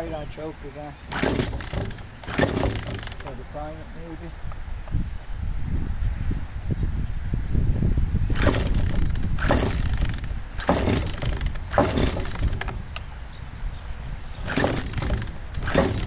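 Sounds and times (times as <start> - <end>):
chainsaw starter cord pulls: 0.9 - 3.8, 8.3 - 13.1, 14.4 - 16.0.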